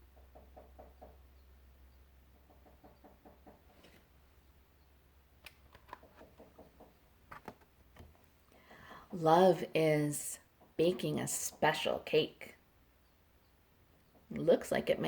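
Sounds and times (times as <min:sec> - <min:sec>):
faint room hum: 0:03.6 - 0:15.0.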